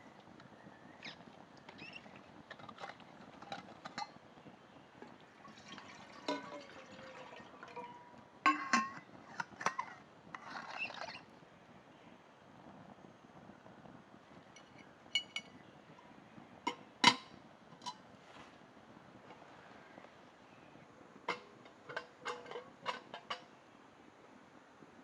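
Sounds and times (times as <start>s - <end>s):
cookware and utensils clinking: 1.8s - 4.2s, 5.4s - 11.2s, 14.6s - 15.6s, 21.3s - 23.5s.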